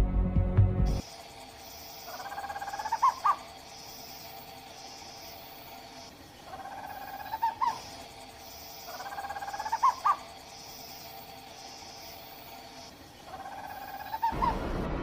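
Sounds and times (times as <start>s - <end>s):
high-pitched insect-like pulses: 0.9s - 14.3s
owl calling: 2.0s - 4.1s, 6.4s - 11.0s, 13.2s - 14.6s.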